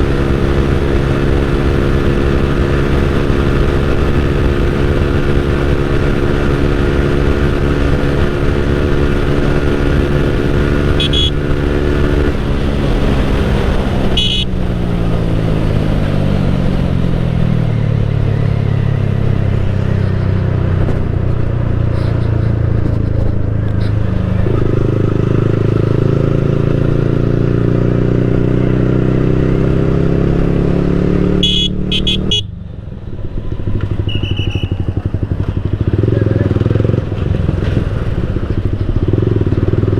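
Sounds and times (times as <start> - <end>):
motorcycle engine on the road: 0.0 - 39.9
short high beeps: 11.0 - 11.4, 14.2 - 14.5, 31.4 - 32.5.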